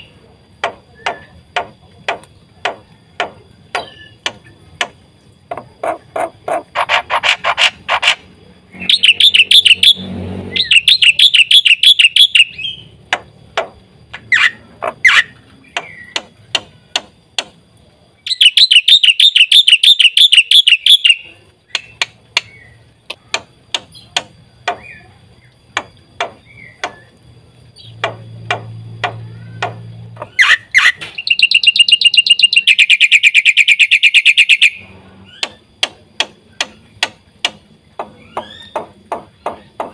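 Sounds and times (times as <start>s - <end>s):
bird clicking chak notes: 18.3s - 25.0s, 27.8s - 34.8s
bird fast rattling trills: 30.3s - 35.5s.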